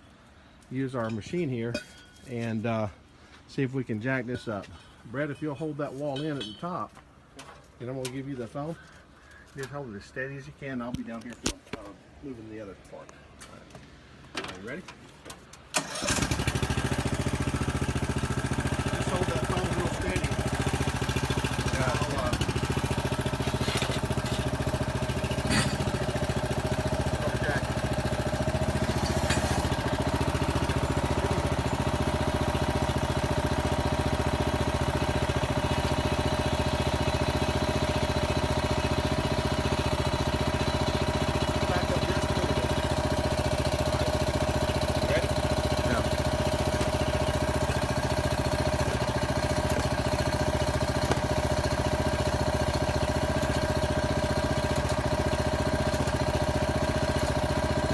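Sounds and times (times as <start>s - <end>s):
small engine running: 15.8s - 57.9s.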